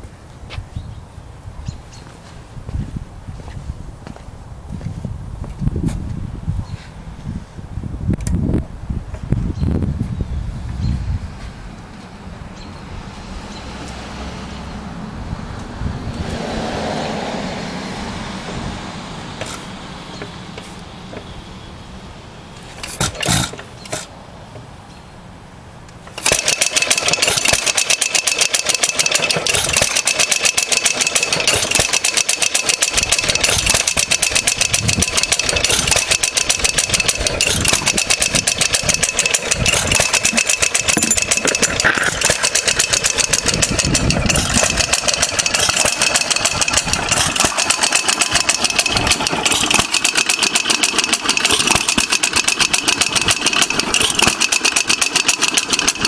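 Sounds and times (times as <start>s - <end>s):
hit-and-miss engine running: 11.4s - 24.7s, 25.9s - 56.0s.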